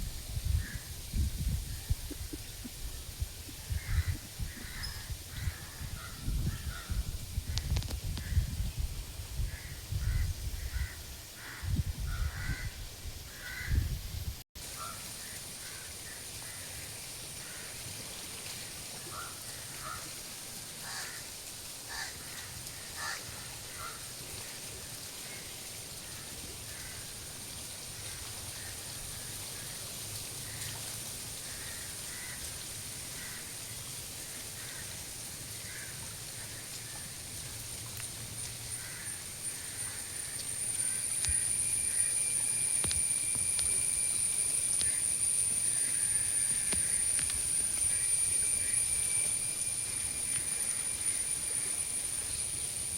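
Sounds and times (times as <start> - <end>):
crows cawing: 13.3 - 13.8, 17.4 - 17.8, 20.8 - 21.3, 21.9 - 24.0, 31.4 - 32.5, 33.2 - 33.5, 34.6 - 35.0, 35.6 - 36.5, 38.7 - 42.1, 44.8 - 48.8
steady high-pitched whine: 37.1 - 52.9.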